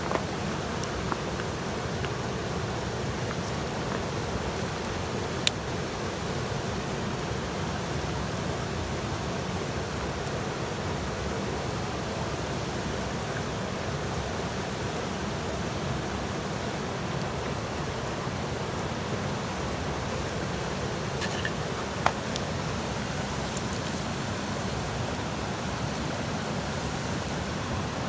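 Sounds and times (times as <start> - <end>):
campfire hissing: 0.0 - 28.0
fire popping: 16.9 - 28.0.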